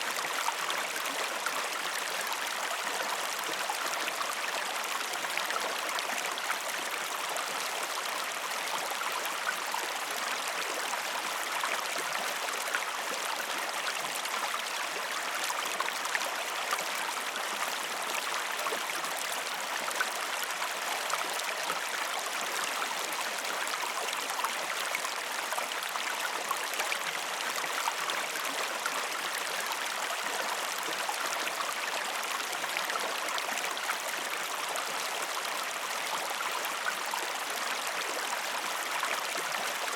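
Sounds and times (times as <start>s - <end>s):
stream running water: 0.0s - 39.9s.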